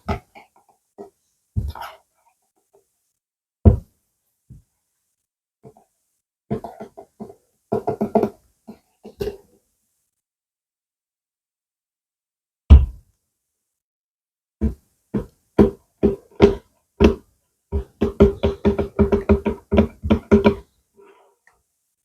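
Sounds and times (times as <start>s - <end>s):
tapping on hollow object: 14.6s - 20.6s.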